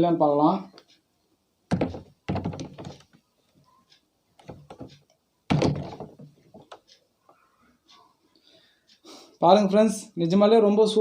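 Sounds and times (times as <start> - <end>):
heavy stone thudding on toy: 1.7 - 3.0, 5.5 - 6.3.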